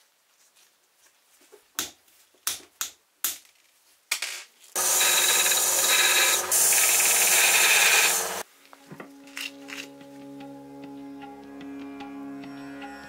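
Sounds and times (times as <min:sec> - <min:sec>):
power tool grinding: 0:04.8 - 0:08.4.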